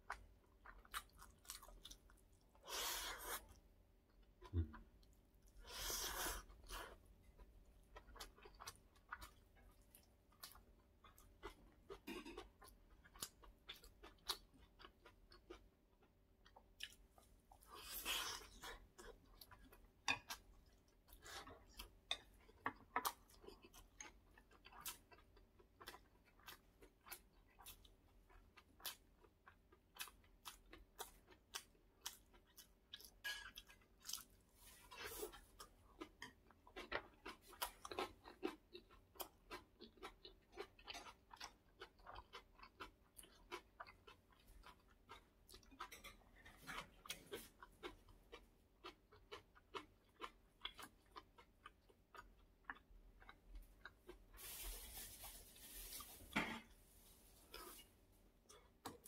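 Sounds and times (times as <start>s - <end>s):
close-up chewing: 6.4s - 54.7s.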